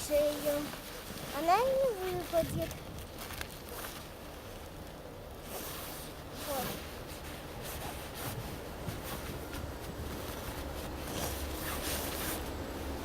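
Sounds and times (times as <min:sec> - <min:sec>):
handling rustling and scraping: 0:00.0 - 0:13.0
wind rumble on microphone: 0:01.7 - 0:03.2, 0:06.8 - 0:13.0.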